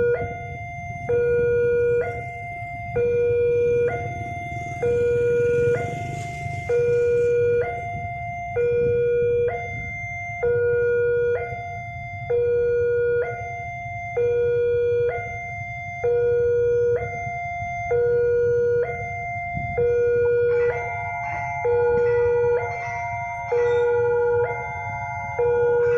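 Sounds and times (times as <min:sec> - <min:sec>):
level crossing two-tone alarm: 0:00.0 - 0:25.9
low rumble: 0:00.3 - 0:09.1.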